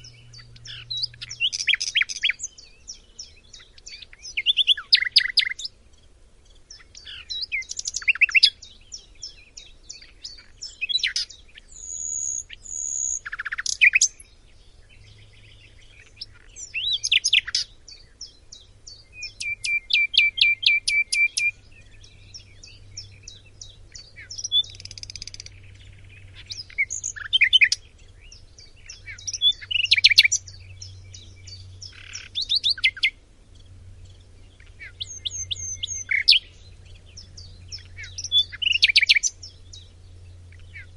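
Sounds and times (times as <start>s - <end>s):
songbird singing whistled phrases: 0.0s - 5.8s, 6.7s - 33.2s, 34.5s - 40.9s.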